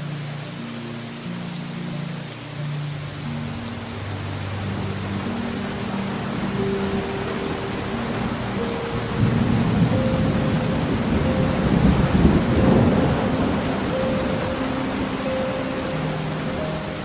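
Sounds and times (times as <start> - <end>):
rain falling: 0.0 - 17.0
rolling thunder: 7.0 - 15.1.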